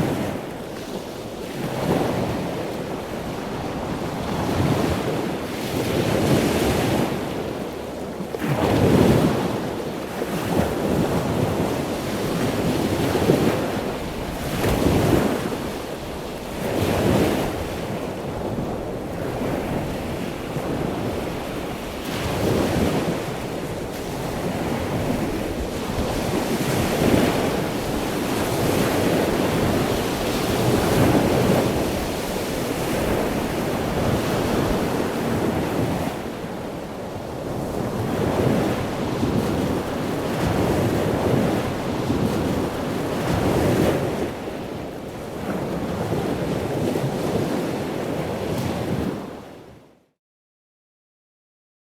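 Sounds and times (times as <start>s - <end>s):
ocean waves breaking: 8.4s - 49.7s.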